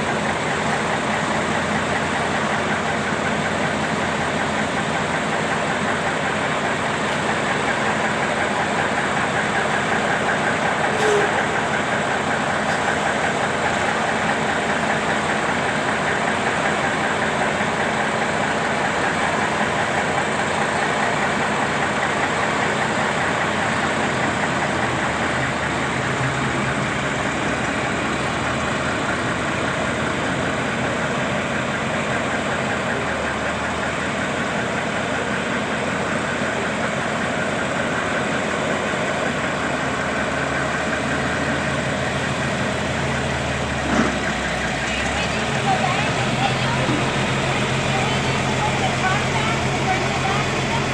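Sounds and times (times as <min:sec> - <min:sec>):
truck engine idling: 0:00.0 - 0:50.9.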